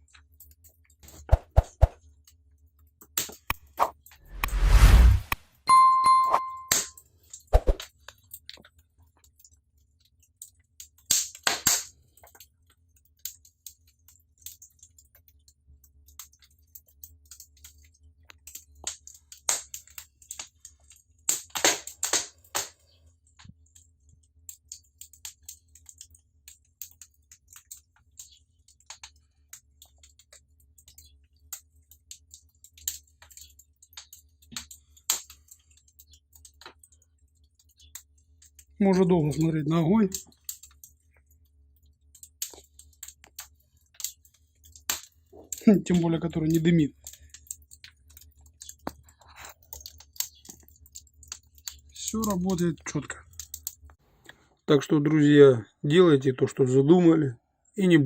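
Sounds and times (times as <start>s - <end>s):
wood fire crackling: 0.0s - 5.4s, 7.1s - 55.2s
sharp pops and snaps: 3.0s - 5.4s, 7.3s - 13.8s, 16.0s - 38.7s, 40.1s - 54.4s.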